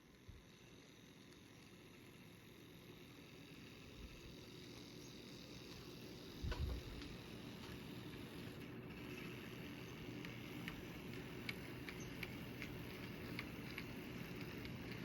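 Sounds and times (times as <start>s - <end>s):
model train running on track: 0.0s - 15.0s.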